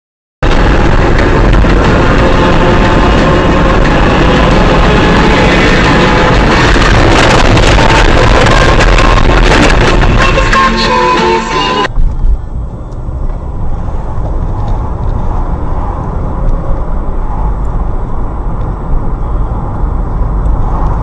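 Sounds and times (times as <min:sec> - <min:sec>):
car driving rumble: 0:00.4 - 0:21.0
music: 0:00.5 - 0:11.9.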